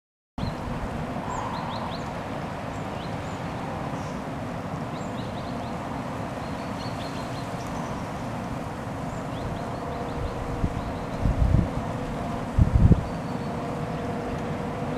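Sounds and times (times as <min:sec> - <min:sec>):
songbirds chirping: 0:00.4 - 0:14.9
steady low rumble: 0:09.6 - 0:13.1.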